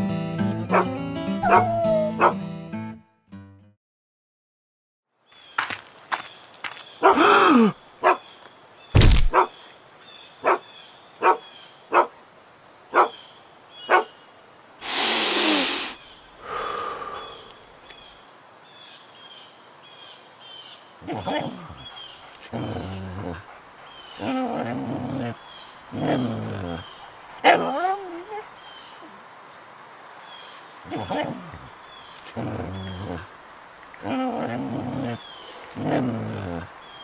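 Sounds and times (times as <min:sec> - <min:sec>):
dog yelp: 0:01.4 - 0:02.4
sharp snaps or knocks: 0:09.0 - 0:09.4.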